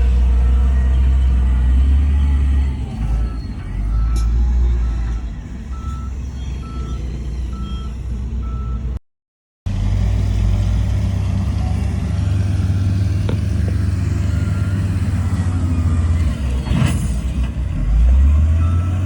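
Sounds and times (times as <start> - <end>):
reversing alarm beeping: 0.0 - 8.9, 18.5 - 19.0
diesel engine rumble: 0.0 - 9.0, 9.7 - 19.0.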